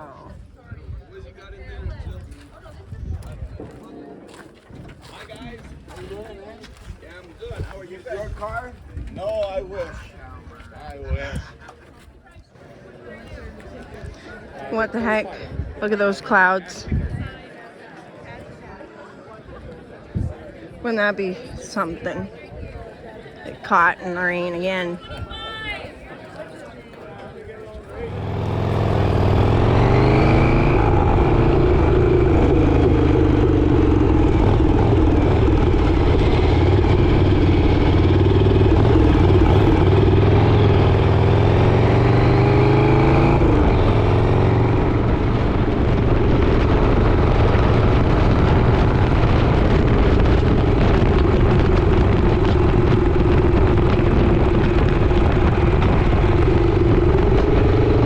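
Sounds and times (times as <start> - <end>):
rushing wind noise: 15.3 - 15.8, 16.8 - 17.4, 27.9 - 58.0
motorcycle engine accelerating: 28.0 - 58.0.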